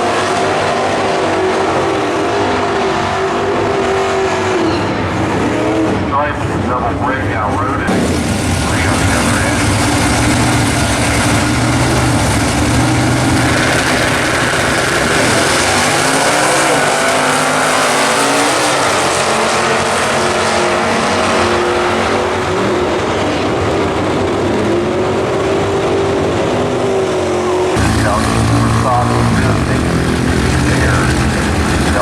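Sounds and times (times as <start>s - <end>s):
drag racing cars at full throttle: 0.0s - 32.0s.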